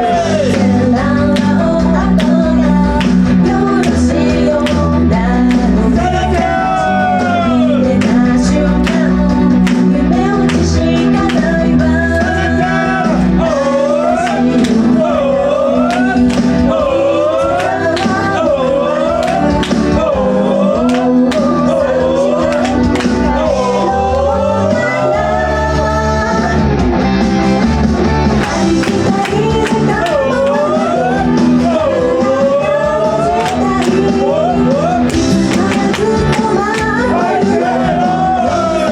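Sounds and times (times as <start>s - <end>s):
woman singing: 0.0s - 26.8s, 28.4s - 38.9s
rock band backing: 0.0s - 38.9s.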